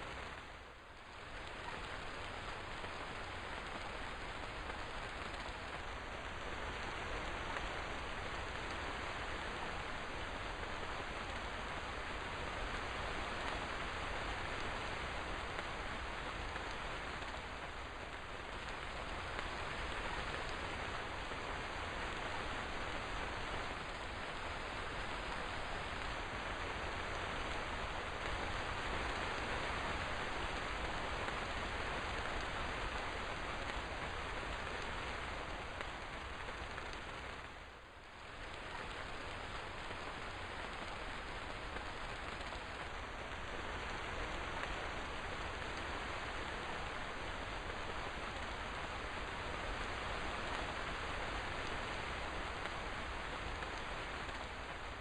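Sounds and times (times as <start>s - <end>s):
steady rain patter: 0.0s - 55.0s.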